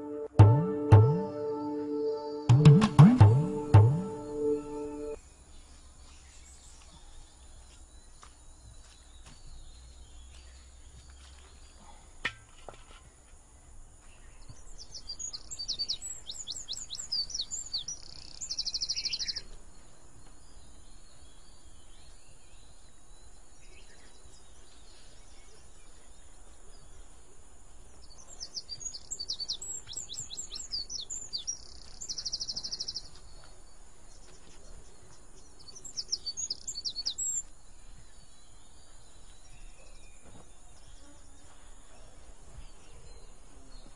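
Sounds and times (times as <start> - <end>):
bird song with buzzy trill: 14.8 - 19.4, 28.1 - 33.1, 35.4 - 37.5.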